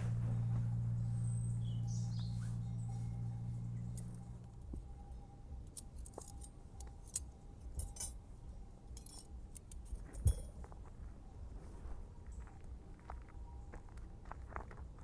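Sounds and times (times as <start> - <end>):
light clinks and clicks: 1.8 - 8.2, 8.9 - 10.8.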